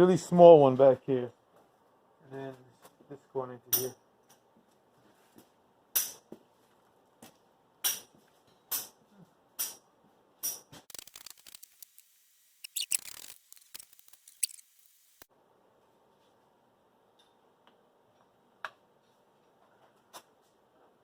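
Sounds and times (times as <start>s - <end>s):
small rattles of parts: 10.9s - 14.9s
crackling clicks: 10.9s - 15.3s.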